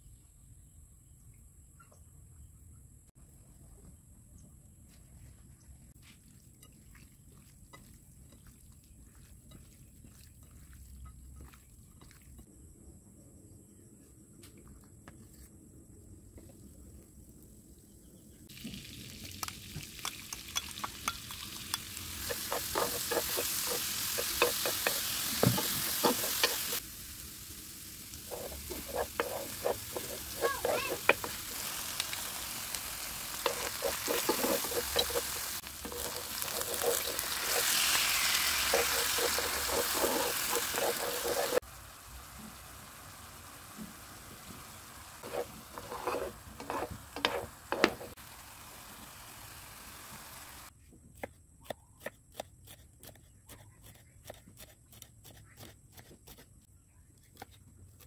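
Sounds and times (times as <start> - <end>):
garlic sizzling in hot oil: 18.5 - 50.7
sauce sizzling: 18.5 - 50.7
spatula scraping wok: 21.7 - 26.8, 28.2 - 41.6, 43.9 - 48.2.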